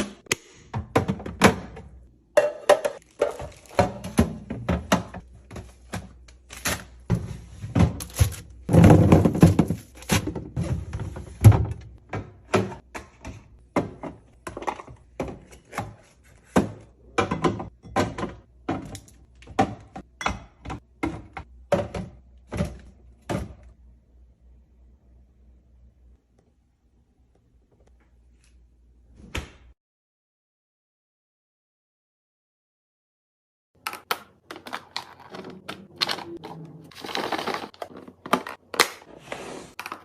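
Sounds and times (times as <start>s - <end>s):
items knocking in a refrigerator: 0.7s - 6.2s, 7.0s - 23.8s.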